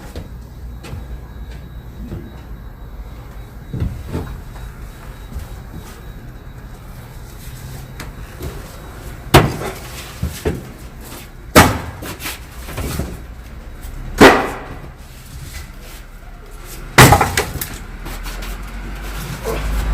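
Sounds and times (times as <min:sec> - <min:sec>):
loud slams: 0:11.5 - 0:12.1.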